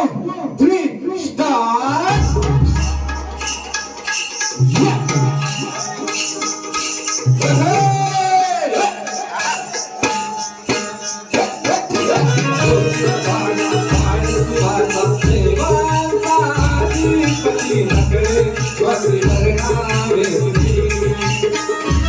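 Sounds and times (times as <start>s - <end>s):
hand drums fast rhythm: 2.1s - 22.0s
folk music ensemble: 2.2s - 22.0s.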